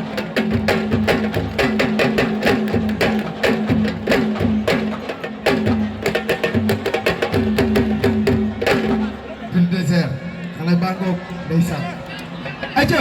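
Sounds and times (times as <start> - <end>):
fast sharp drum strokes: 0.0 - 9.2.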